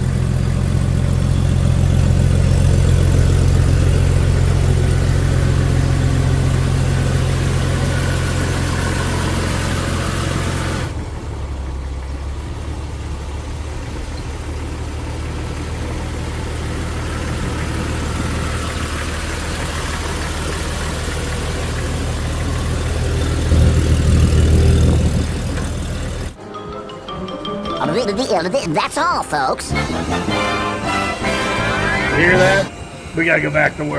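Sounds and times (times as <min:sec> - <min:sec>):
engine idling: 0:00.0 - 0:26.4.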